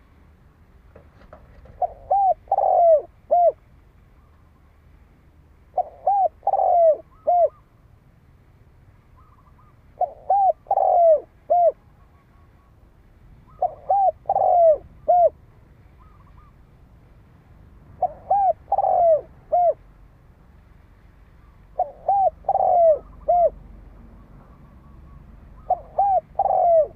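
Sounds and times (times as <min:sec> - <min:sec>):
dove cooing: 0:01.2 - 0:03.6, 0:05.7 - 0:07.7, 0:09.2 - 0:12.7, 0:13.5 - 0:15.4, 0:16.0 - 0:16.6, 0:18.0 - 0:19.8, 0:21.7 - 0:23.6, 0:24.2 - 0:26.9.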